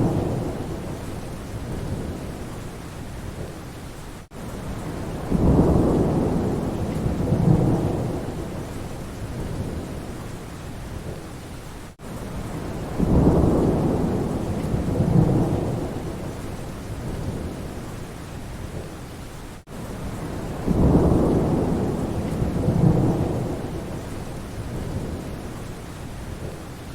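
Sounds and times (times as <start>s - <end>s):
rolling thunder: 0.0s - 2.5s, 4.7s - 10.2s, 12.4s - 17.8s, 20.0s - 25.5s
steady rain: 0.0s - 26.9s.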